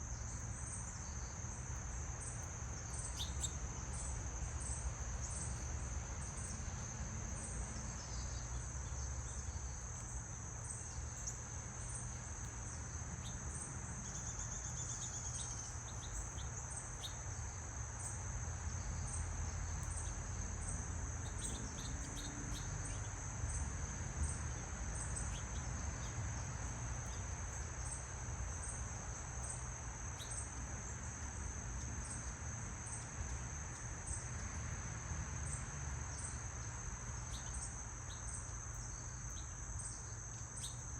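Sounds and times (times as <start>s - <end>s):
crickets trilling: 0.0s - 40.9s
faint bird chirps: 2.4s - 4.1s.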